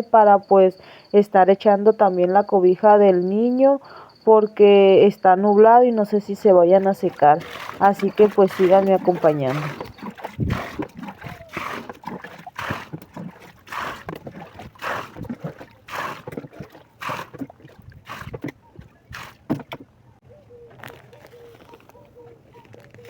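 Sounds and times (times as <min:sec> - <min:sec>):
water sloshing and splashing: 0:06.4 - 0:20.0.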